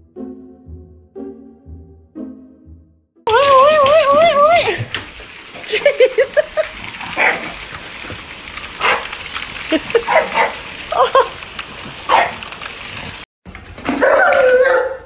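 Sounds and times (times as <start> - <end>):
dog barking and yipping: 7.0 - 7.7, 8.8 - 9.2, 9.9 - 11.3, 12.1 - 12.5, 13.9 - 15.0.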